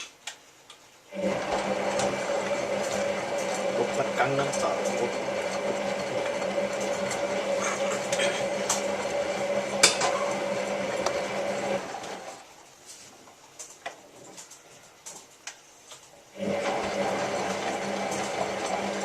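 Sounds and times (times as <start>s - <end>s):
washing machine drum humming: 1.1s - 12.4s, 16.4s - 19.0s.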